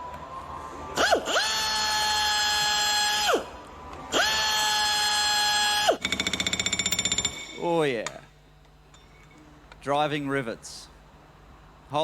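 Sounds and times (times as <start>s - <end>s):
high-pitched drill whining: 4.1s - 7.7s.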